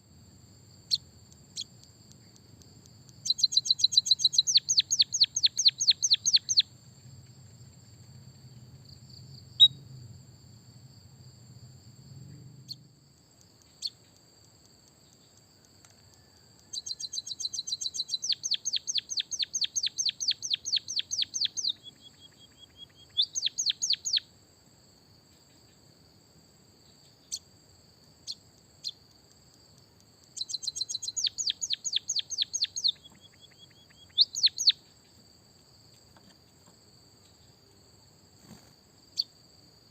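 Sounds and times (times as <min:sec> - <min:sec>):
faint high whine: 0:00.0 - 0:19.3
songbird trilling: 0:00.9 - 0:01.8, 0:03.1 - 0:06.7, 0:09.6 - 0:09.8, 0:16.1 - 0:24.3, 0:30.3 - 0:34.9
bird whistle: 0:03.3 - 0:06.6, 0:16.7 - 0:24.2, 0:30.4 - 0:34.8.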